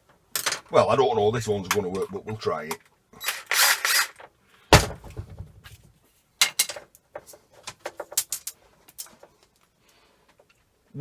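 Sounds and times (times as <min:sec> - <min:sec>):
small parts clattering: 0:00.3 - 0:00.7, 0:02.7 - 0:05.8, 0:06.4 - 0:09.6.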